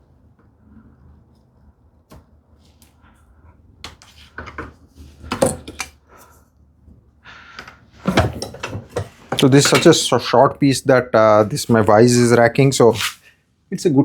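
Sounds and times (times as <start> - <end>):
wooden pieces and tools clattering: 7.6 - 10.0.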